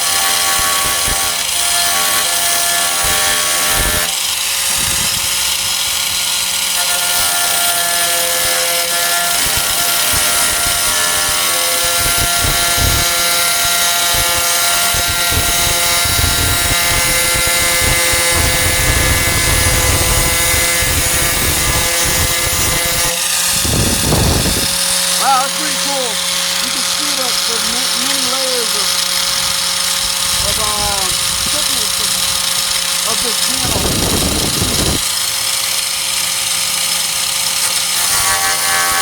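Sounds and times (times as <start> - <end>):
angle grinder whine: 8.9 - 37.4
disc grinding metal: 10.2 - 35.2.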